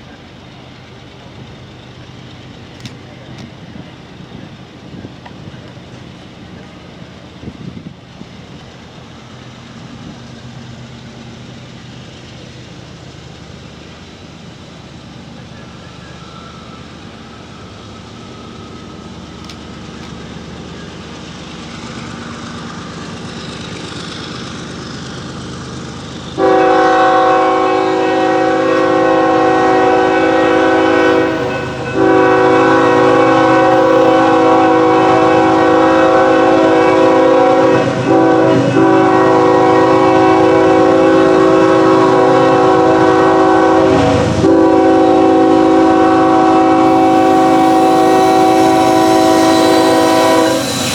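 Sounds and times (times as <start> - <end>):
diesel locomotive rumble: 0.0 - 50.9
multi-chime air horn blasts: 26.4 - 50.9.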